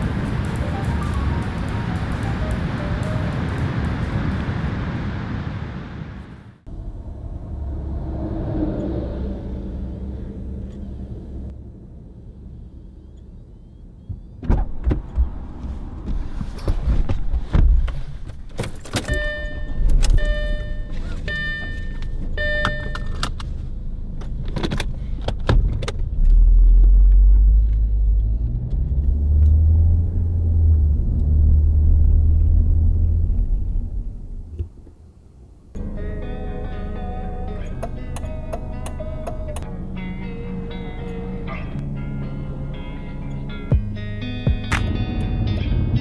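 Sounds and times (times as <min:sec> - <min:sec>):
car engine starting and rumbling: 0:00.0 - 0:46.0
car chime beeping: 0:19.0 - 0:23.3.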